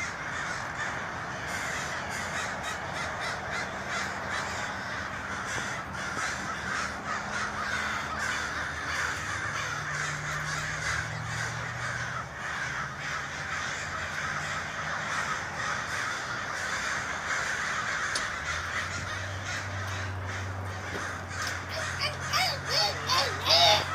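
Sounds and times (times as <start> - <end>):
flock of crows cawing: 0.0 - 23.9.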